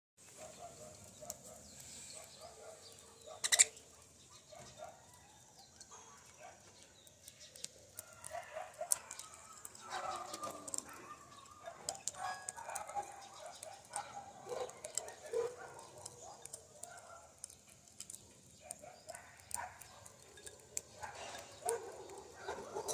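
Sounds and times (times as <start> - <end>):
parrots chirping and chattering: 0.3 - 22.9.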